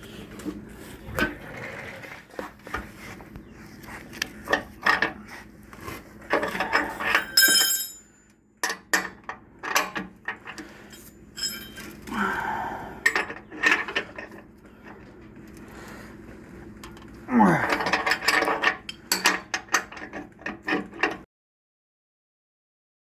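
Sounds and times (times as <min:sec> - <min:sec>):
metal scraping: 0:00.0 - 0:03.2
metal tools clinking and knocking: 0:06.3 - 0:12.1, 0:13.0 - 0:14.4, 0:16.8 - 0:21.2.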